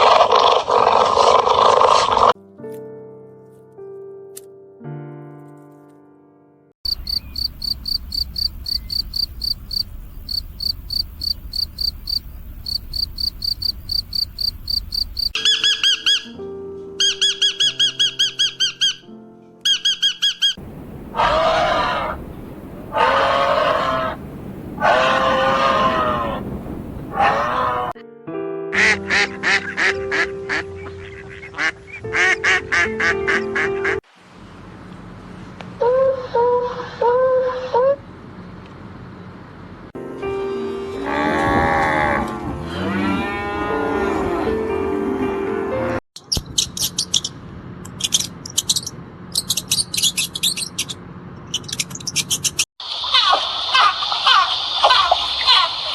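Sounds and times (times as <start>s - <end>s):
animal chirping: 6.9s - 16.4s, 17.0s - 19.1s, 27.1s - 27.9s, 46.3s - 55.8s
background music: 15.4s - 20.5s, 28.0s - 34.0s, 40.0s - 46.0s
low rumble: 20.6s - 28.0s
short animal calls: 21.1s - 22.3s, 22.9s - 24.2s, 24.8s - 26.5s, 27.1s - 28.0s.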